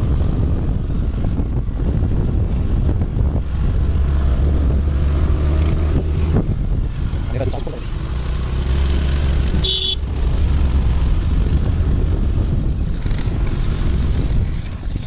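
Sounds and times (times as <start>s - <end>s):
horn tooting: 9.6s - 10.0s.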